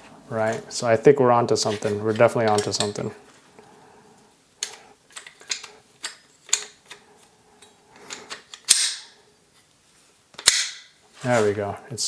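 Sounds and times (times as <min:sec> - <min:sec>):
metal parts clicking and knocking: 0:02.5 - 0:03.1, 0:04.6 - 0:07.0, 0:07.6 - 0:09.1
sharp metallic snap: 0:08.7 - 0:09.1, 0:10.4 - 0:10.9.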